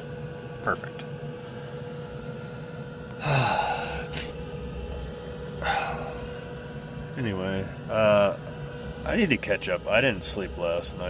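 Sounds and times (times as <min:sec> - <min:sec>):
diesel air heater humming: 0:00.0 - 0:11.0
man sighing: 0:03.2 - 0:04.4, 0:05.6 - 0:06.3.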